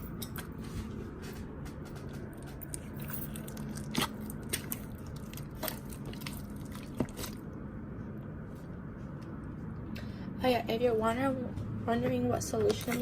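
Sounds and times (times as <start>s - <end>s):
slime squelching: 2.3s - 7.7s, 12.6s - 13.0s.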